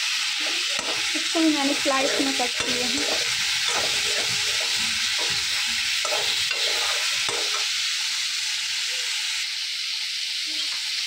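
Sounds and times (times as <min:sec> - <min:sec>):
vegetables sizzling in hot oil: 0:00.0 - 0:11.0
ladle scraping and stirring: 0:00.6 - 0:07.7.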